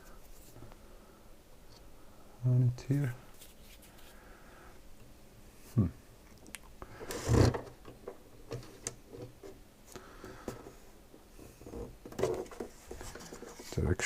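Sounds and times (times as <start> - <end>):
plastic parts knocking and rubbing: 11.6 - 13.8.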